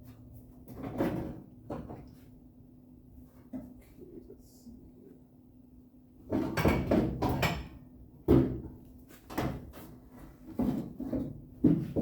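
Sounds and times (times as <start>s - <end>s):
hard objects knocking and clattering: 6.2s - 9.8s, 10.4s - 12.0s.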